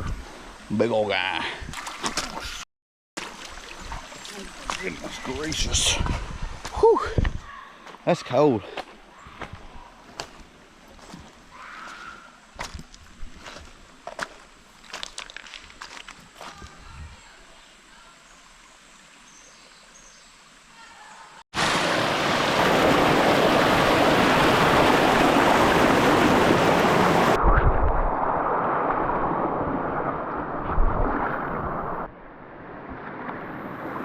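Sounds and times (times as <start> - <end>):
rushing water: 3.2 - 7.2, 17.2 - 34.0.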